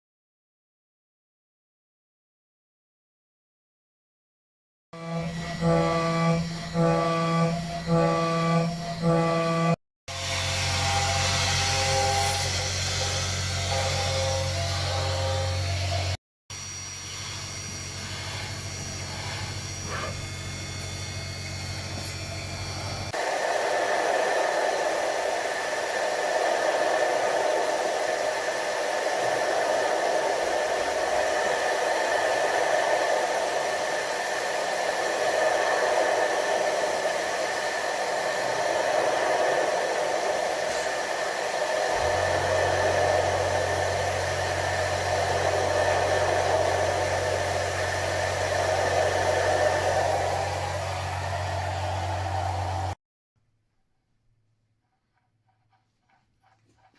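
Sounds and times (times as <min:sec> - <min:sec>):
milling machine running: 0:05.0 - 0:53.0
low hum: 0:21.2 - 0:53.0.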